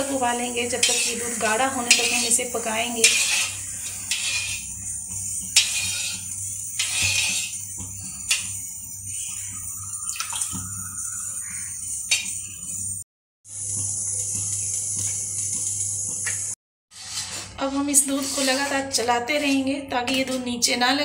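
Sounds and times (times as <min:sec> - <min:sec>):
spatula stirring boiling milk: 0:00.0 - 0:12.8, 0:16.9 - 0:19.6.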